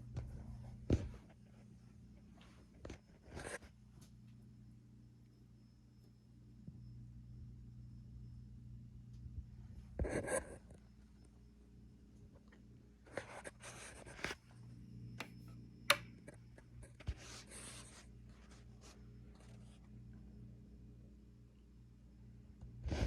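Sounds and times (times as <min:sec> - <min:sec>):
sharp click: 0:15.2 - 0:16.0.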